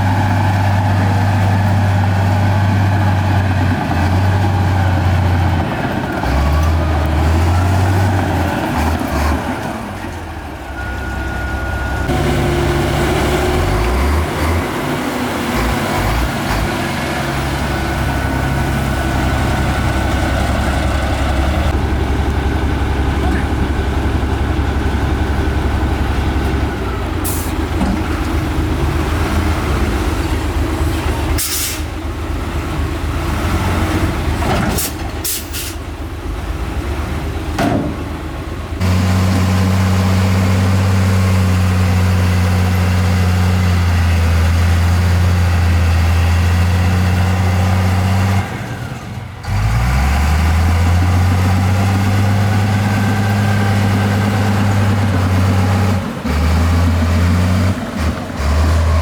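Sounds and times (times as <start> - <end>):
heavy diesel machinery running: 0.0 - 59.0
short hisses: 31.4 - 31.9.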